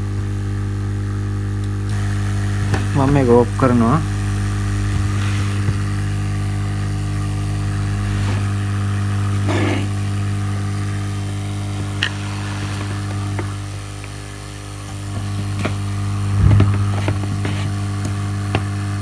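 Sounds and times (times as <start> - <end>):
hot air blower humming: 0.0 - 19.0.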